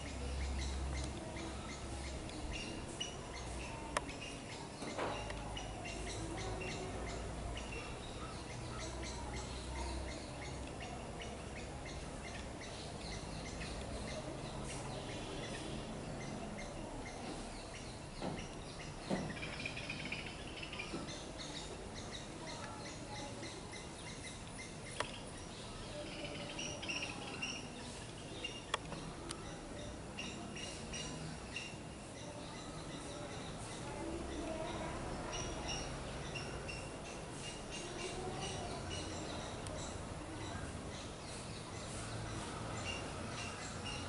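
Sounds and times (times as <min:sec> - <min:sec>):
birds chirping: 0:00.0 - 0:44.0
outdoor background hum: 0:00.0 - 0:44.0
sharp clicks: 0:28.7 - 0:29.4.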